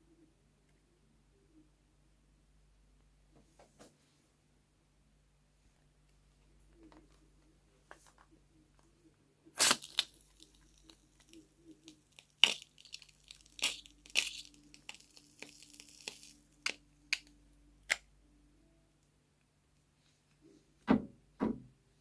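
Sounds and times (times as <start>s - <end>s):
tearing and crinkling: 9.6s - 17.3s.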